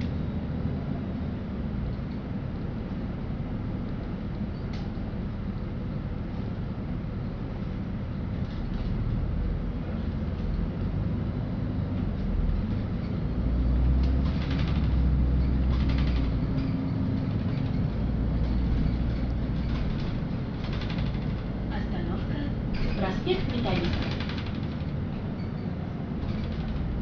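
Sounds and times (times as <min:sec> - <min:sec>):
bus engine and road rumble: 0:00.0 - 0:27.0
short rattles: 0:14.1 - 0:21.7, 0:22.6 - 0:27.0.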